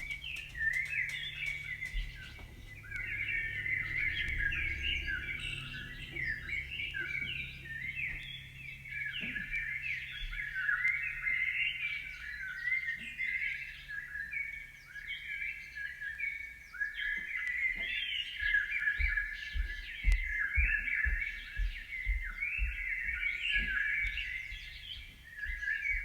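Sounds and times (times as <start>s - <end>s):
low bumps: 0.0s - 10.5s
faint low hum: 0.0s - 12.8s
flock of small birds chirping: 0.0s - 26.0s.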